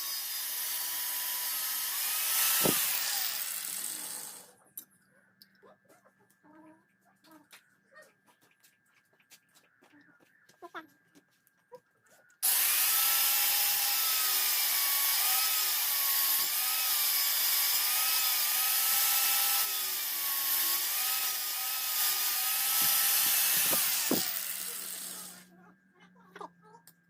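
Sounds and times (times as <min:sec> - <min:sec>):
power grinder grinding steel: 0:00.0 - 0:04.5, 0:12.4 - 0:25.5.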